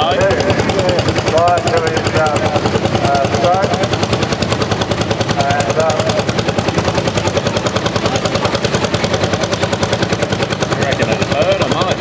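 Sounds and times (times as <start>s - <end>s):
tractor engine rapid exhaust beat: 0.0s - 12.0s.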